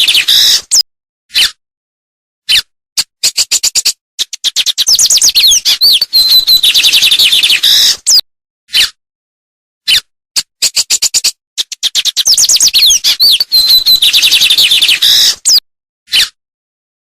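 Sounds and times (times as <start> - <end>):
songbird singing: 4.4 - 8.2, 11.8 - 15.6.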